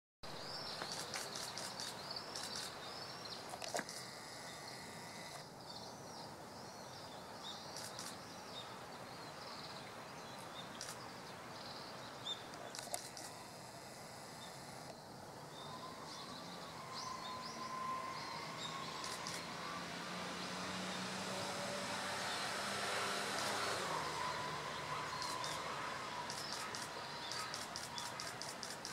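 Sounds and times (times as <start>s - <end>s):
background hiss: 0.3s - 28.9s
small bird chirping: 0.5s - 5.8s, 6.8s - 8.7s, 23.2s - 28.9s
sharp clicks: 0.8s - 2.8s, 7.8s - 8.2s, 12.7s - 13.4s, 19.0s - 19.4s, 26.2s - 28.9s.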